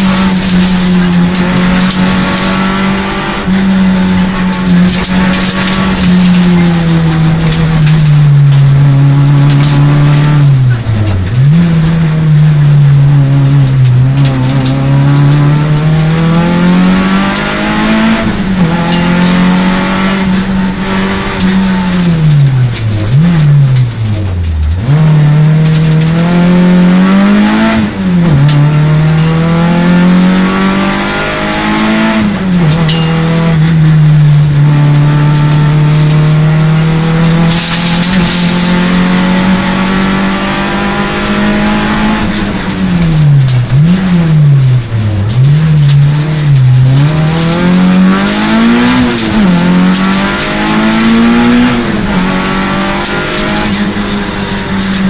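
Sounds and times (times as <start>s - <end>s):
rally car engine revving hard: 0.0s - 55.0s.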